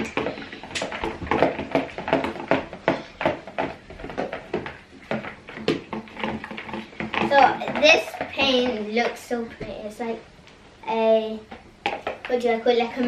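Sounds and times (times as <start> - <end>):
utensil clicking and scraping in bowl: 0.0 - 9.6.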